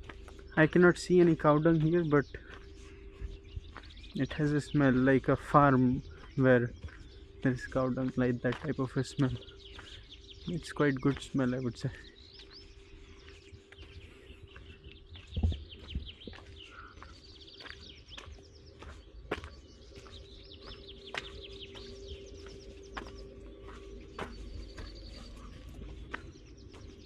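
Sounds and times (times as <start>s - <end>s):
low hum: 0.0s - 27.0s
songbirds chirping and singing: 0.0s - 27.0s.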